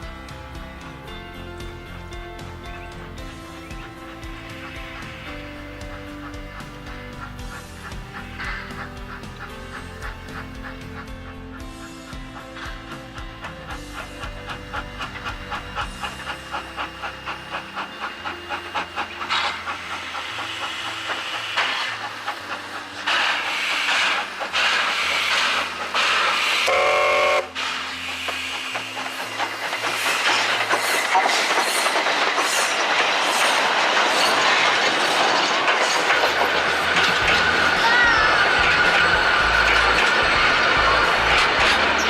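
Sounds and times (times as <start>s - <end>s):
rail clatter: 0.0s - 42.0s
steady steam hiss: 0.0s - 42.0s
steam train exhaust beats: 0.0s - 42.0s
train whistle blast: 14.8s - 31.3s.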